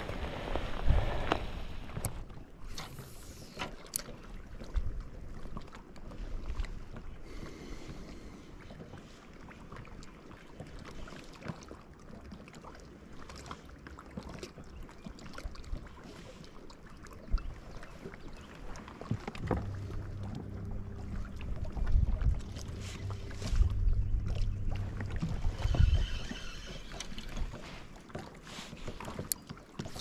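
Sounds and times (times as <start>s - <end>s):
wind: 0.0s - 30.0s
steady low hum: 19.3s - 27.5s.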